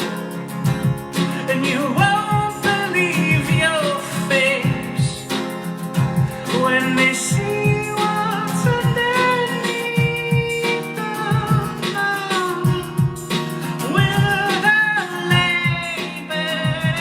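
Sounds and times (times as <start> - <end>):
acoustic guitar strumming: 0.0 - 17.0
man singing: 1.1 - 17.0.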